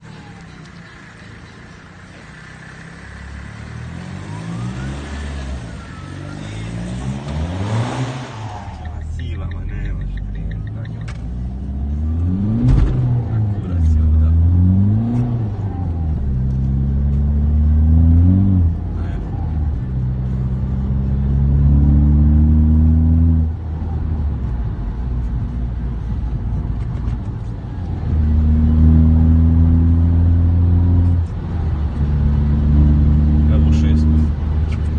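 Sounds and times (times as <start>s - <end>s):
diesel engine accelerating: 0.0s - 34.9s.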